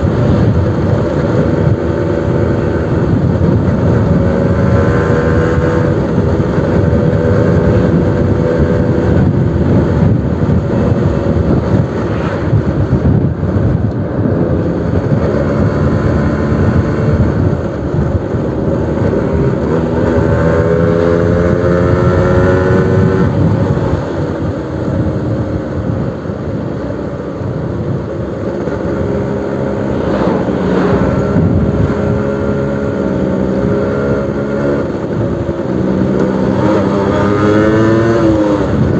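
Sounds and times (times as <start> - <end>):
two-stroke engine revving: 18.7 - 24.0, 28.8 - 38.9.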